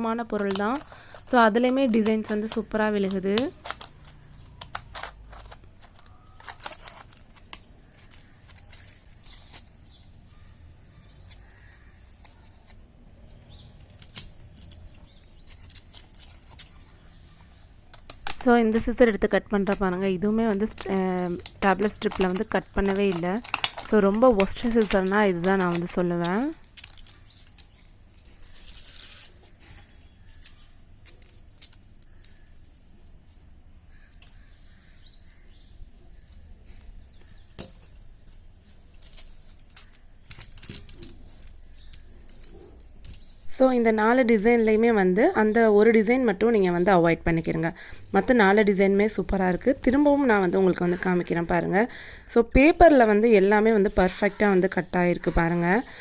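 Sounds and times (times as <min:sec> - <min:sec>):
plastic blister strip crinkling: 0:00.0 - 0:12.9, 0:13.5 - 0:17.3, 0:17.9 - 0:33.0, 0:36.7 - 0:56.0
scissors cutting rasp: 0:00.2 - 0:09.6, 0:20.5 - 0:27.2.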